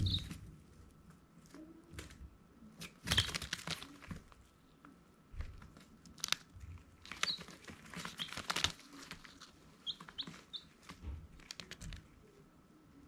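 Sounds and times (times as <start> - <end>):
baby chicks peeping: 0.0 - 0.5, 2.8 - 4.1, 7.0 - 12.1.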